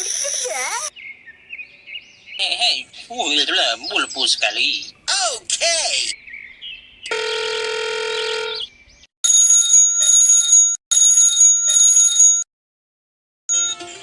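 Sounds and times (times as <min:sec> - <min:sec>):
bell-like ringing: 0:09.4 - 0:12.4, 0:13.5 - 0:14.0.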